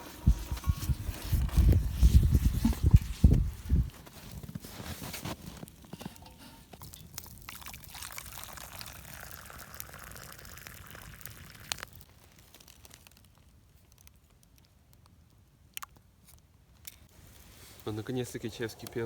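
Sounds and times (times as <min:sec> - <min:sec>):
tea pouring into mug: 0:07.1 - 0:12.0.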